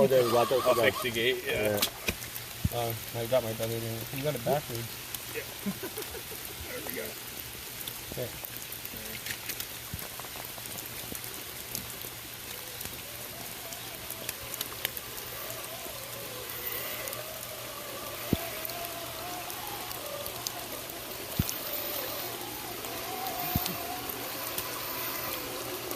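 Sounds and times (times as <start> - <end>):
small electric motor whining: 0.0 - 1.4, 11.3 - 25.9
steady hiss: 0.0 - 25.9
sharp ticks: 14.0 - 25.9.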